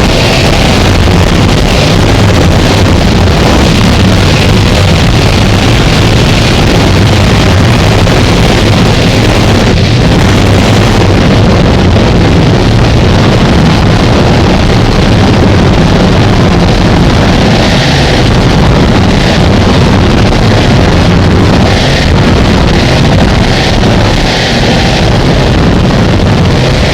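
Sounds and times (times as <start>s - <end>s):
distorted static noise wall: 0.0s - 26.9s
heavy low rumble: 0.0s - 26.9s.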